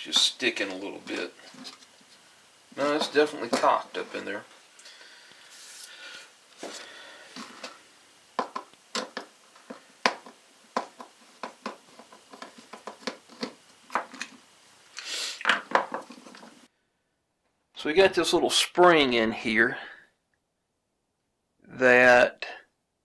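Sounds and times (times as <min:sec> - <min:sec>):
scraping rustles: 0:00.0 - 0:16.7.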